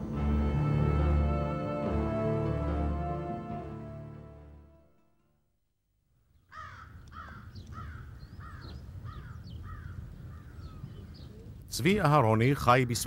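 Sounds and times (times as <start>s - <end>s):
background music: 0.0s - 5.4s
bird calling: 6.4s - 11.5s.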